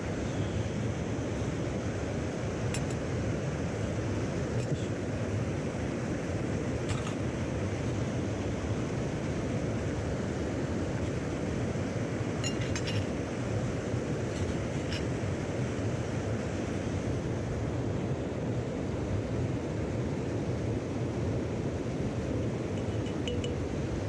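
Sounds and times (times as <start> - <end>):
mountain stream rushing: 0.8 - 24.0
light clinks: 12.4 - 13.1, 22.8 - 23.7.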